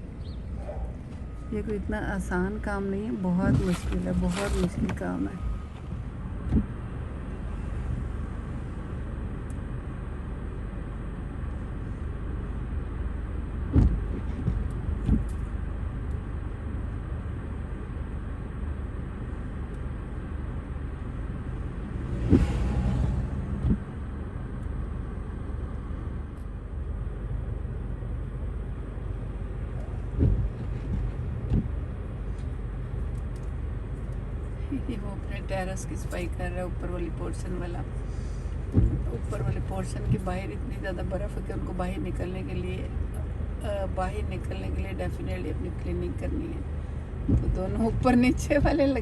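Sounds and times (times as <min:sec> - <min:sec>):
dull thumps: 0:13.7 - 0:15.3, 0:30.1 - 0:31.9, 0:38.7 - 0:40.2.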